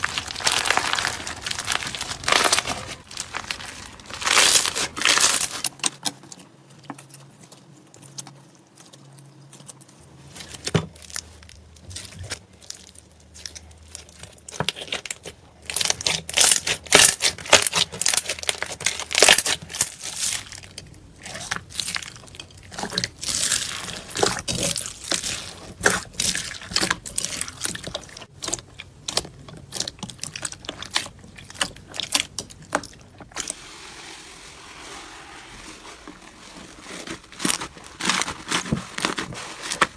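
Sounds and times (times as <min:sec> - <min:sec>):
slime squished by hand: 0:00.0 - 0:05.9.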